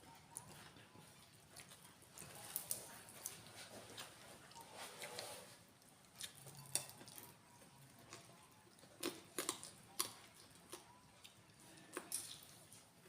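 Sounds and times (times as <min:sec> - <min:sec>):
person chewing with wet mouth smacks: 0:08.1 - 0:12.9.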